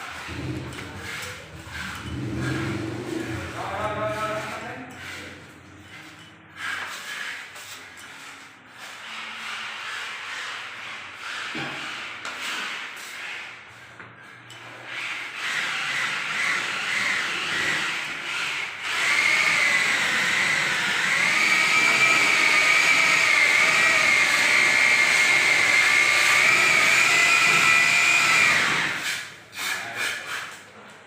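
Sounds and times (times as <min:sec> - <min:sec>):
power tool whining: 0:14.9 - 0:29.2.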